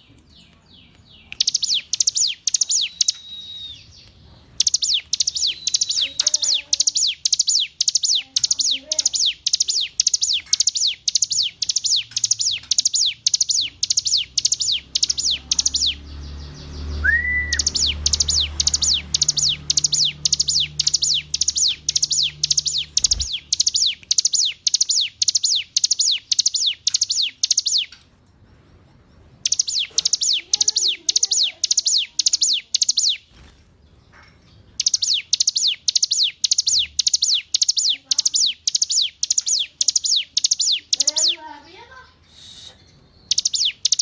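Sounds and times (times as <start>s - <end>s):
bird singing sharp descending notes: 4.6s - 27.9s, 29.4s - 33.2s.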